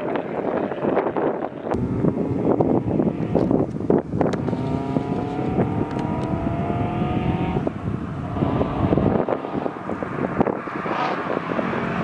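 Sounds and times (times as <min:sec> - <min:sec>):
wind buffeting microphone: 0:00.0 - 0:12.0
car engine accelerating hard: 0:01.7 - 0:12.0.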